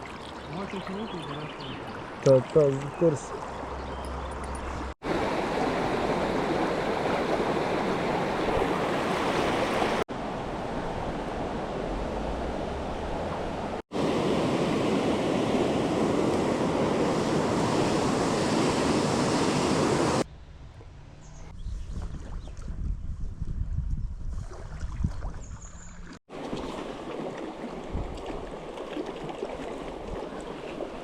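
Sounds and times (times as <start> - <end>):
fast-flowing river rushing: 11.9 - 20.2.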